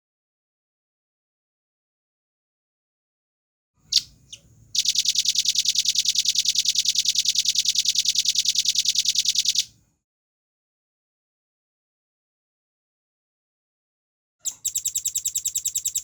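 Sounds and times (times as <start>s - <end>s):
nuthatch rattling trill: 3.9s - 9.7s, 14.4s - 16.0s.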